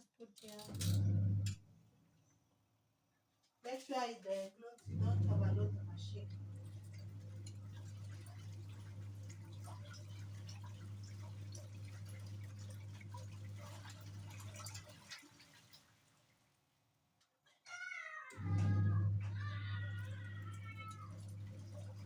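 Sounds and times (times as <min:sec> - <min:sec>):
low hum: 0:04.9 - 0:10.9, 0:18.4 - 0:22.0
water clicks and splashes: 0:06.2 - 0:16.6, 0:18.4 - 0:22.0
cat meowing: 0:17.7 - 0:21.3.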